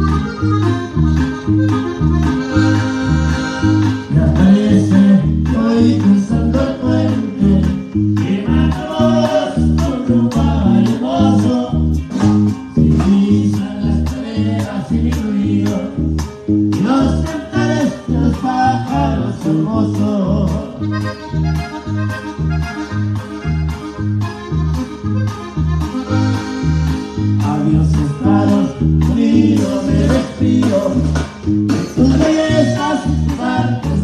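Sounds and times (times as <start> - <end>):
accordion melody: 0.0 - 34.0
bouncing bass line: 0.0 - 34.0
strummed guitar: 0.0 - 34.0.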